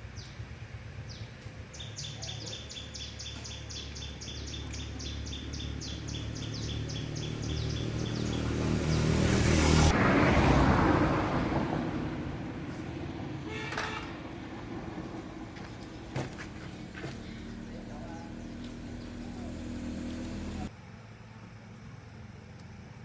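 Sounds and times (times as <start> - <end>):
vehicle passing by: 3.0 - 20.9
horn toot: 13.4 - 14.3.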